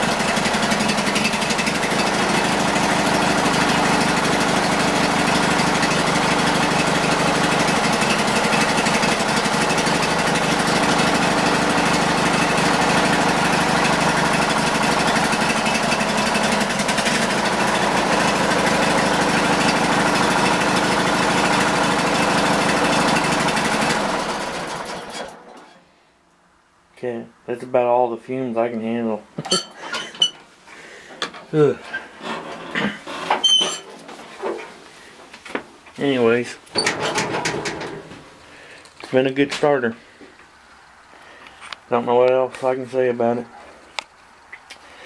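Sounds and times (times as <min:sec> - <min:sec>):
garden tractor engine running: 0:00.0 - 0:25.8, 0:31.2 - 0:40.2.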